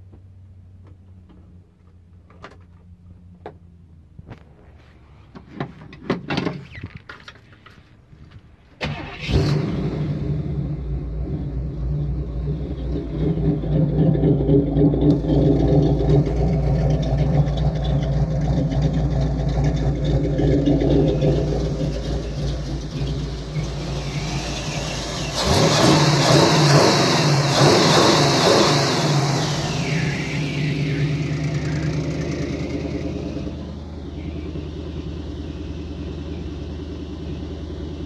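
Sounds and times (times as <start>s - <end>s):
engine running steadily: 8.8s - 38.0s
loud rushing noise: 23.4s - 33.6s.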